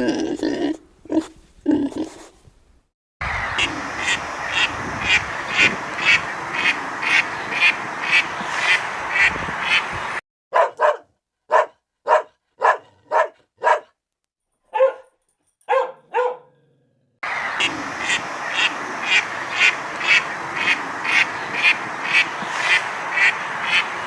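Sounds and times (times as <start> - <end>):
steady background noise: 3.2 - 10.2
animal calls: 3.2 - 13.9.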